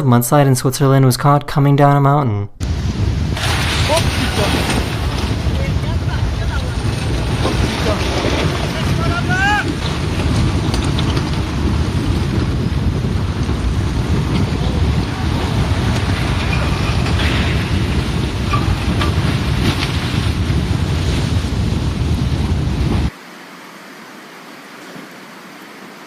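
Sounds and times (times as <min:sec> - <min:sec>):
mudslide rumbling rush: 0:02.6 - 0:23.2.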